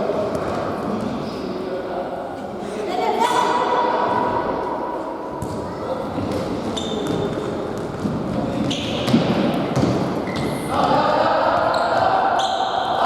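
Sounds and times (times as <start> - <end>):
shoes squeaking on floor: 5.4 - 10.7, 11.7 - 13.0
ball kicked and bouncing: 7.0 - 10.5
players calling in hall: 10.3 - 13.0.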